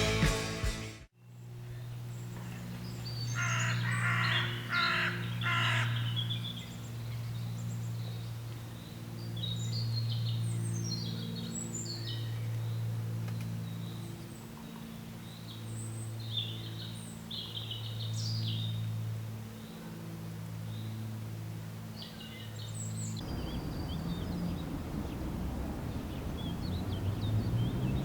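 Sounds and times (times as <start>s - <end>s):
music: 0.0s - 1.1s
birdsong: 1.2s - 21.2s, 21.9s - 28.0s
harsh cawing bird calls: 2.4s - 6.8s
low steady hum: 22.7s - 28.0s
high bird chirps: 23.2s - 28.0s.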